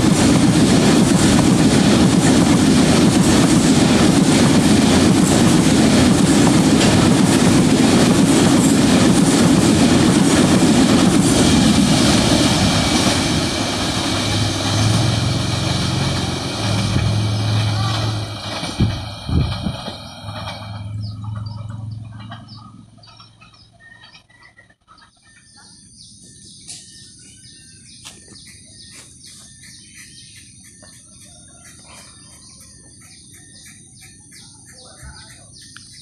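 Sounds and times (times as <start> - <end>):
freight train rumbling: 0.0 - 36.0
birds chirping: 19.8 - 36.0
regular ticking: 27.6 - 36.0.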